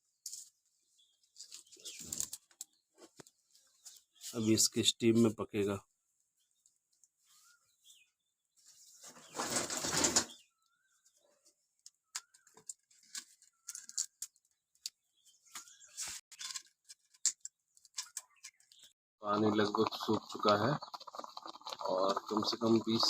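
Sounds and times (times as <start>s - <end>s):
birds chirping: 0.7s - 16.6s, 17.7s - 23.0s.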